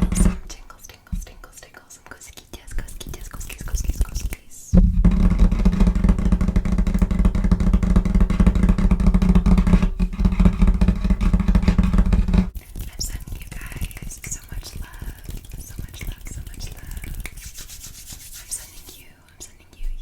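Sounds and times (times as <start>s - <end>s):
fingertips tapping and scratching table: 0.0s - 0.4s, 5.0s - 19.0s.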